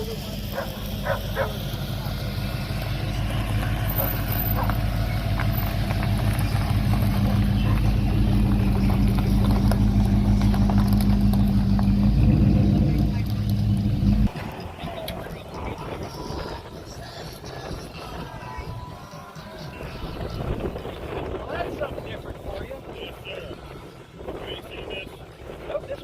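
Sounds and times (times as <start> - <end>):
car engine running: 0.0 - 18.7.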